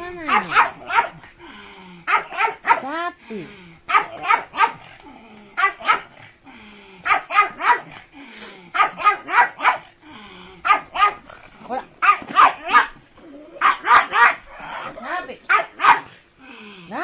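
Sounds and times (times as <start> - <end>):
dog barking sharply: 0.3 - 1.2, 8.8 - 9.8, 12.0 - 12.9, 13.6 - 14.4, 15.5 - 16.1.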